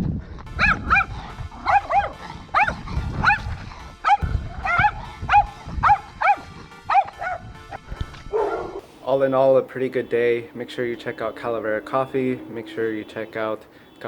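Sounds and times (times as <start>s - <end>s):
low thuds: 0.0s - 8.8s
dogs barking: 0.6s - 7.4s, 8.3s - 8.8s.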